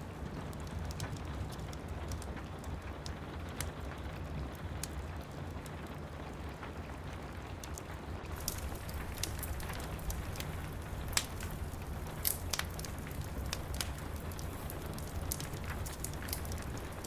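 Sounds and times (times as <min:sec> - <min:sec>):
wood fire crackling and popping: 0:00.0 - 0:17.0
rain hissing: 0:08.3 - 0:17.0.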